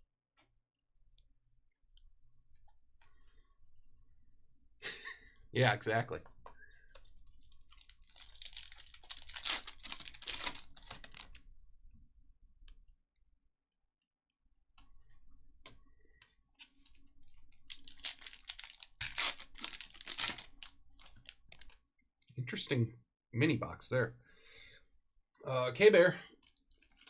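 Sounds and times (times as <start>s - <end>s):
card pack wrappers crinkling: 7.4s - 11.4s, 17.5s - 21.8s.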